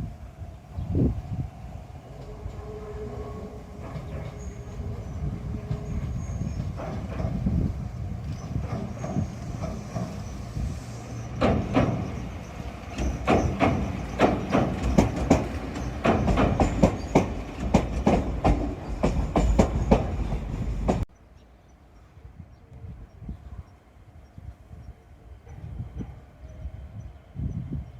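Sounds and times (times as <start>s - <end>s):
electric train rumbling past: 0.0s - 21.1s
wheels clacking on rail joints: 2.0s - 21.1s.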